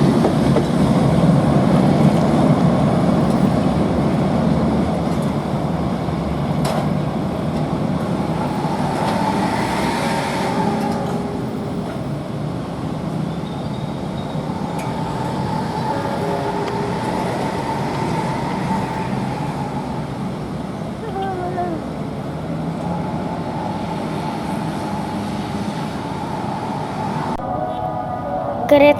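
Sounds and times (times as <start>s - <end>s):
high rail squeal: 0.0s - 28.7s
train rumbling past: 0.0s - 28.9s.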